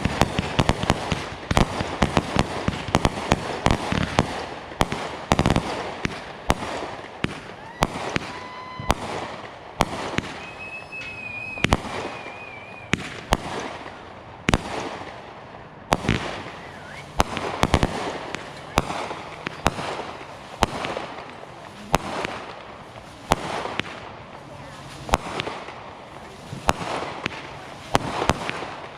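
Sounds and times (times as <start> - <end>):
firework bangs: 0.0 - 28.9
firework crackle: 0.0 - 28.9
firework whistle: 7.3 - 13.4, 16.4 - 20.2.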